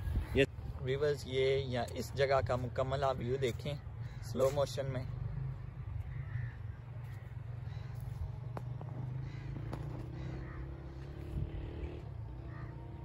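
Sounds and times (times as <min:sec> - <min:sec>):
birds calling: 0:02.0 - 0:13.0.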